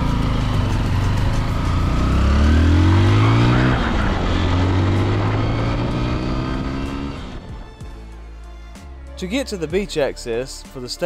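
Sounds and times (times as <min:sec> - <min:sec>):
vehicle engine accelerating: 0:00.0 - 0:08.2.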